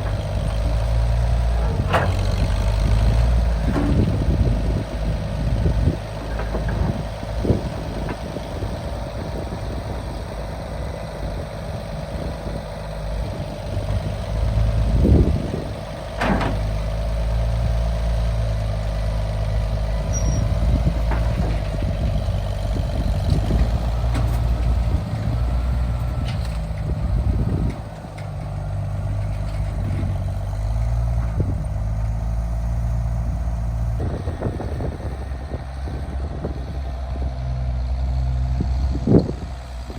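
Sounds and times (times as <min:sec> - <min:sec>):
vehicle engine running: 0:00.0 - 0:39.9
short knocks or clanks: 0:01.6 - 0:03.0, 0:16.2 - 0:16.8.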